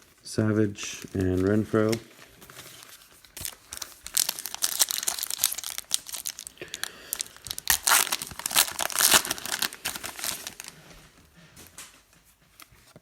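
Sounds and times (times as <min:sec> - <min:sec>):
foil pack tearing and crinkling: 0:01.0 - 0:10.8.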